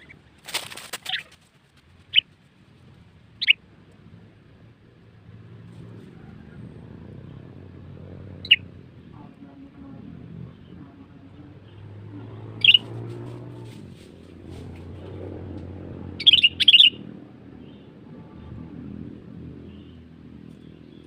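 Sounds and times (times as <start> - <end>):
faint low rumble: 0.0 - 16.2
bird calling sharply: 16.2 - 17.0.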